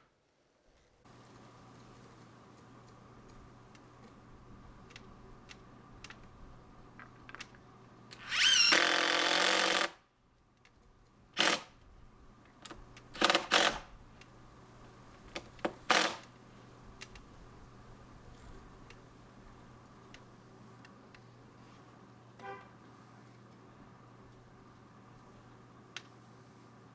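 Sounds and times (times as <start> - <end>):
power drill spinning: 8.2 - 10.0, 11.4 - 11.7, 13.2 - 13.9, 15.8 - 16.3.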